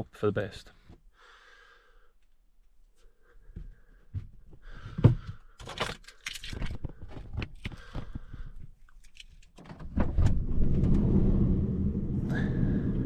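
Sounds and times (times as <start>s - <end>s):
loud low rumble: 10.2s - 13.0s.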